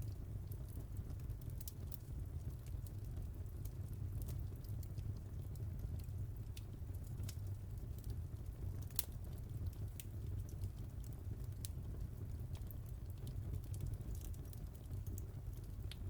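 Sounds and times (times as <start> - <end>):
fire crackling in fireplace: 0.0 - 16.0.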